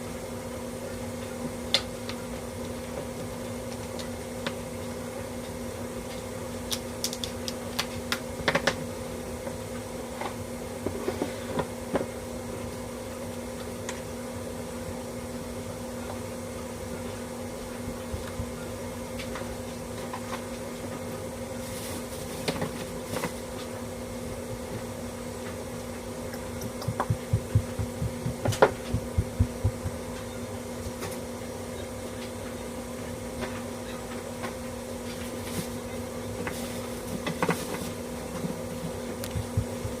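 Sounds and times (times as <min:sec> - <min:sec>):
steady low hum: 0:00.0 - 0:40.0
sharp clicks and taps: 0:26.3 - 0:30.0.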